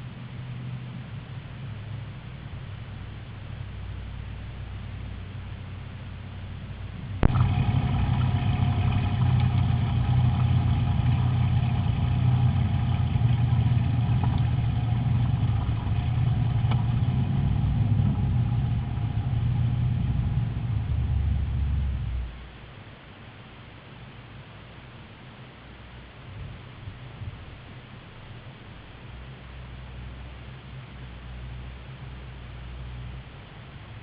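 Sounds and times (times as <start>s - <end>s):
racing car engine idling: 1.0s - 22.6s.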